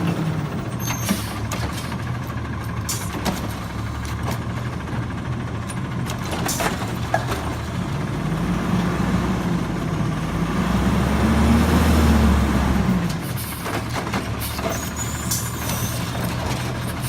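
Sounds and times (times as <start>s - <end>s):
garbage truck engine revving: 5.9s - 17.0s.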